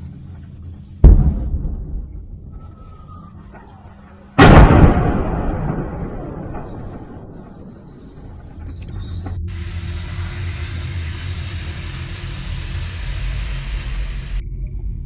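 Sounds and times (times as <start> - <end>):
loud explosion with rumble: 1.0 - 2.5, 4.4 - 8.4
birds chirping faintly: 2.5 - 4.4
steady rushing hiss: 9.5 - 14.4.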